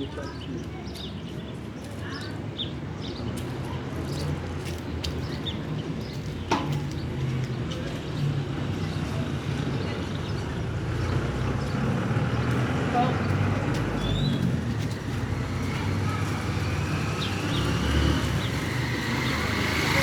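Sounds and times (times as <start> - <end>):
birds chirping: 5.0 - 20.0.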